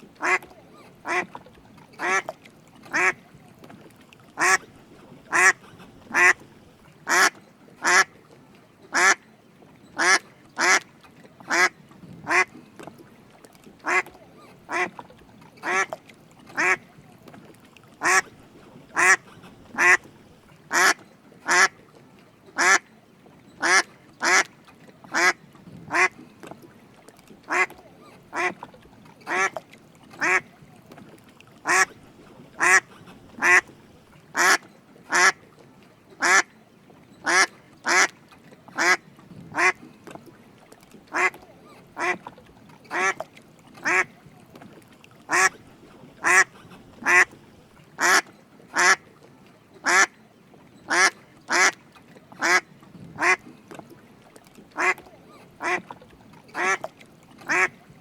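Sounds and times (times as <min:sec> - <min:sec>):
mallard duck quacking: 0:00.2 - 0:01.4, 0:02.0 - 0:02.3, 0:02.9 - 0:03.2, 0:04.4 - 0:04.7, 0:05.3 - 0:06.5, 0:07.1 - 0:08.1, 0:08.9 - 0:09.2, 0:10.0 - 0:10.8, 0:11.5 - 0:11.7, 0:12.3 - 0:12.5, 0:13.8 - 0:15.0, 0:15.6 - 0:16.0, 0:16.6 - 0:16.8, 0:18.0 - 0:18.3, 0:18.9 - 0:20.1, 0:20.7 - 0:21.8, 0:22.6 - 0:22.8, 0:23.6 - 0:24.5, 0:25.1 - 0:26.2, 0:27.5 - 0:28.6, 0:29.3 - 0:29.6, 0:30.2 - 0:30.5, 0:31.6 - 0:33.8, 0:34.4 - 0:35.4, 0:36.2 - 0:36.5, 0:37.2 - 0:38.1, 0:38.8 - 0:39.8, 0:41.1 - 0:41.4, 0:42.0 - 0:42.3, 0:42.9 - 0:43.2, 0:43.8 - 0:44.1, 0:45.3 - 0:45.6, 0:46.2 - 0:47.4, 0:48.0 - 0:49.0, 0:49.8 - 0:50.1, 0:50.9 - 0:51.8, 0:52.4 - 0:52.6, 0:53.2 - 0:53.4, 0:54.8 - 0:55.0, 0:55.6 - 0:55.9, 0:56.5 - 0:56.9, 0:57.5 - 0:57.8.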